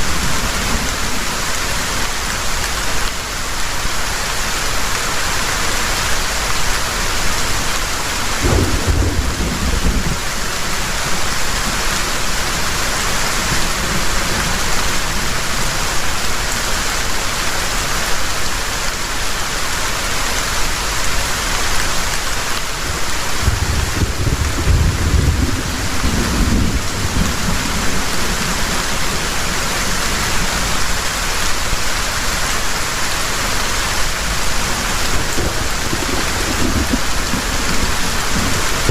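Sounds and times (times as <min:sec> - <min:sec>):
heavy rain falling: 0:00.0 - 0:38.9
low rolls of thunder: 0:08.4 - 0:10.5, 0:23.4 - 0:28.7, 0:35.2 - 0:38.9.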